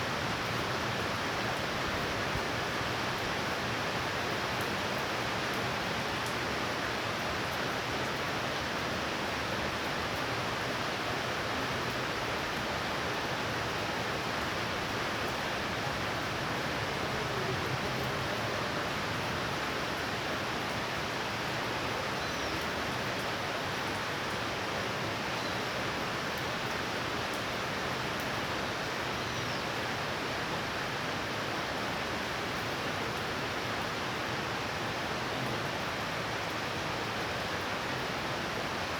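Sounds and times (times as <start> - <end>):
heavy rain falling: 0.2 - 29.1.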